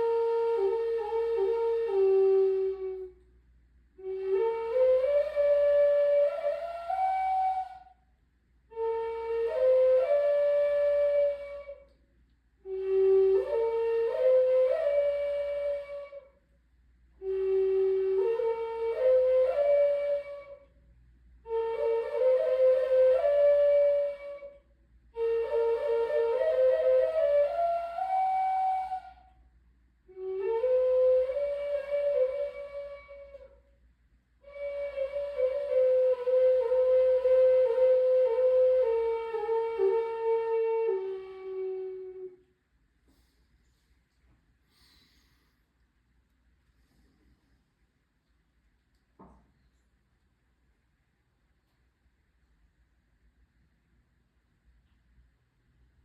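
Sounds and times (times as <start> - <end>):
flute playing slow melody: 0.0 - 3.4, 4.0 - 8.1, 8.7 - 16.5, 17.2 - 20.8, 21.4 - 29.5, 30.1 - 33.8, 34.4 - 42.5.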